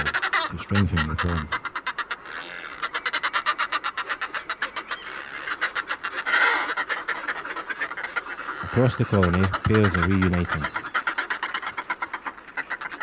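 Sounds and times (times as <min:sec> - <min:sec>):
seabirds cackling: 0:00.0 - 0:13.0.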